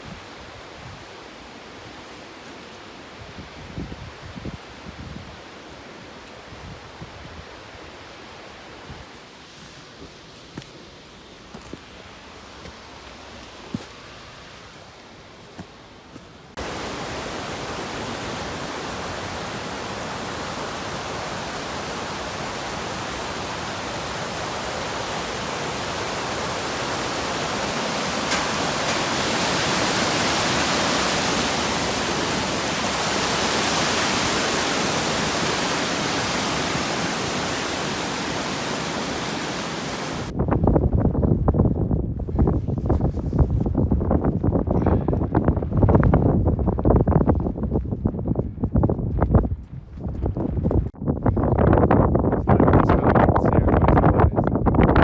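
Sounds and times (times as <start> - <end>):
rushing water: 16.5 - 40.3.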